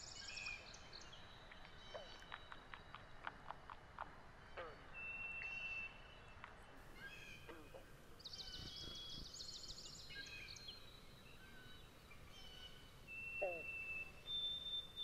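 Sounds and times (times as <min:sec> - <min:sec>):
songbirds calling: 0:00.0 - 0:15.0.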